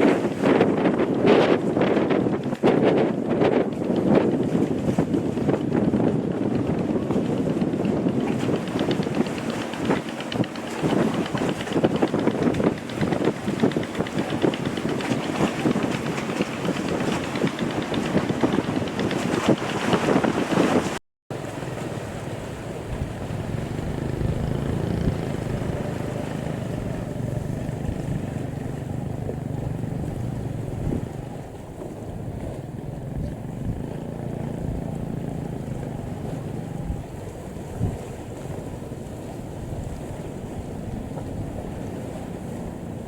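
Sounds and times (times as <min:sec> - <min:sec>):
boat engine humming: 0:00.0 - 0:43.0
water noise: 0:00.0 - 0:43.0
wind on microphone: 0:00.0 - 0:43.0.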